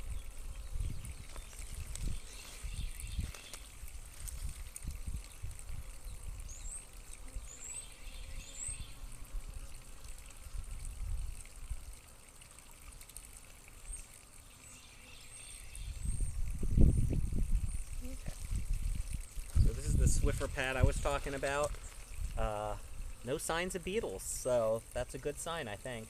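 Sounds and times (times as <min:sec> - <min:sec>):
low wind rumble: 0:15.9 - 0:21.2.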